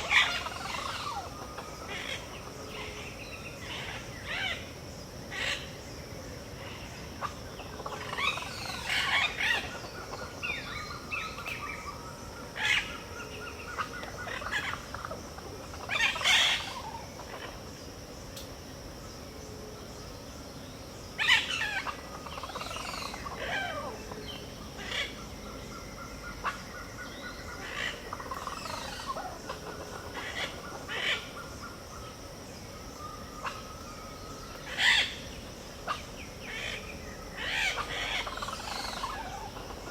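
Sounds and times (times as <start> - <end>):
birds calling and singing: 0.0 - 18.5, 19.8 - 39.9
high insect drone: 0.0 - 39.9
rapid bird trills: 33.0 - 39.9.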